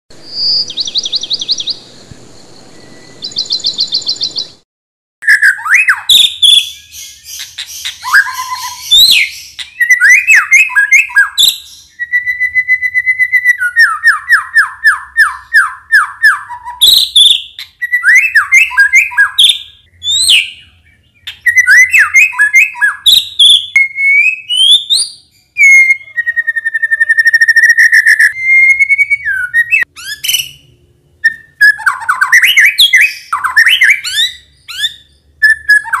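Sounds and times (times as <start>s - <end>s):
bird singing whistles and trills: 0.2s - 4.6s, 5.2s - 36.0s.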